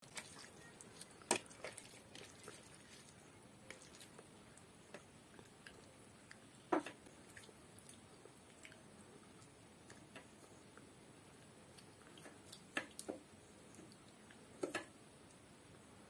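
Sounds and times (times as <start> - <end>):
chewing rice: 0.0 - 10.9, 11.7 - 13.1.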